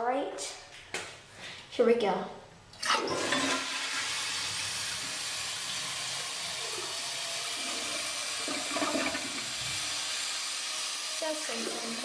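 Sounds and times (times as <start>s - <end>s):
toilet flushing: 2.8s - 12.0s.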